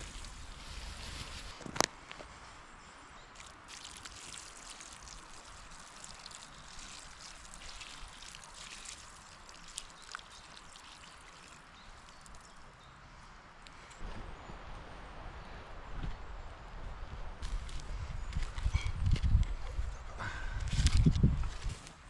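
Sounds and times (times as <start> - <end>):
water hissing on embers: 0.0 - 1.6, 3.4 - 12.7
small crackles: 3.4 - 12.7.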